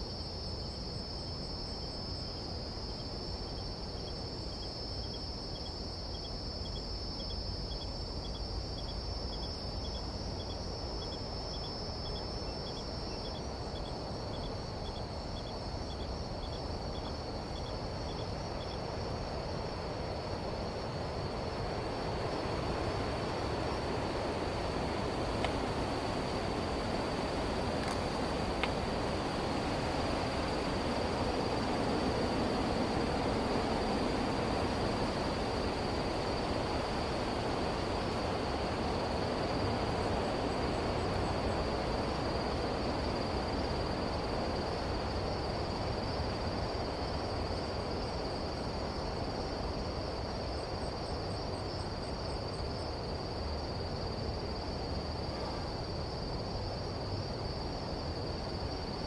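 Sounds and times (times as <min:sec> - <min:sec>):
broad rushing hiss: 0:19.0 - 0:48.9.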